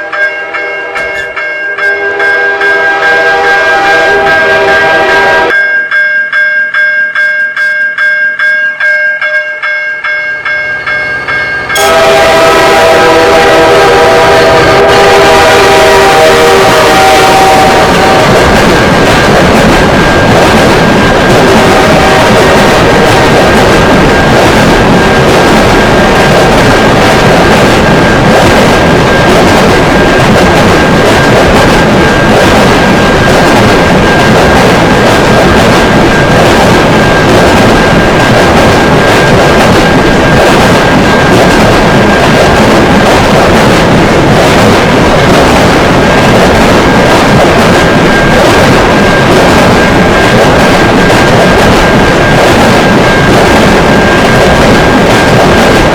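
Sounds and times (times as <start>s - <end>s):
train horn blasting: 0.0s - 5.6s, 11.7s - 19.0s, 21.4s - 23.4s
railroad crossing bell ringing: 0.0s - 35.2s
train passing: 0.0s - 55.9s.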